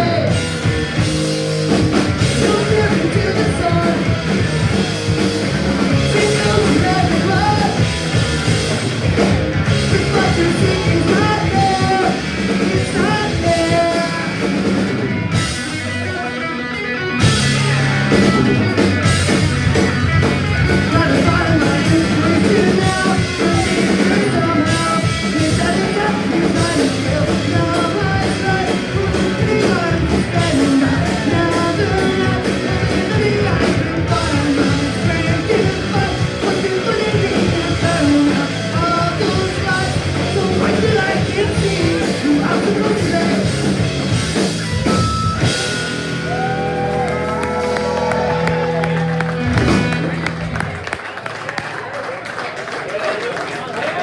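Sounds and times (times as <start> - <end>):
sung vocals: 0.0 - 16.6, 20.3 - 45.7
punk rock band playing loud: 0.0 - 51.2.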